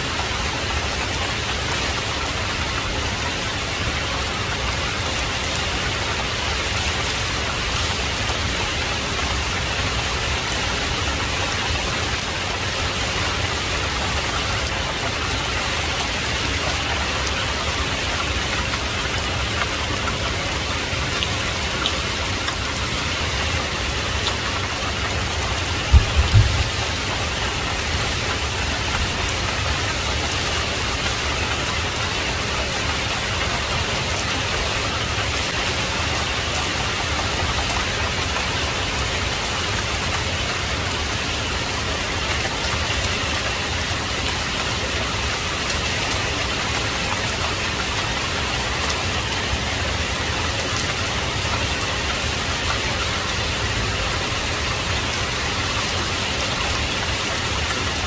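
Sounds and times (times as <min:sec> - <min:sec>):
heavy rain falling: 0:00.0 - 0:58.0
low thump: 0:25.9 - 0:26.8.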